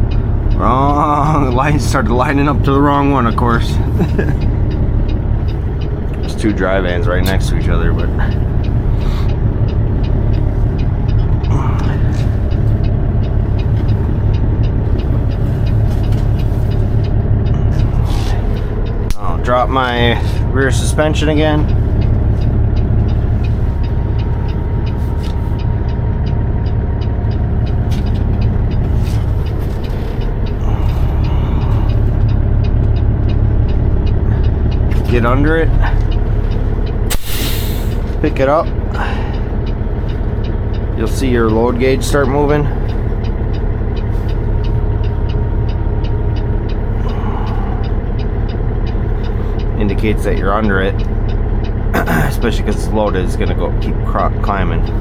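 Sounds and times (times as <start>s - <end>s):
diesel engine running: 0.0s - 55.0s
fast regular ticking: 0.0s - 55.0s
air hiss: 37.1s - 38.1s.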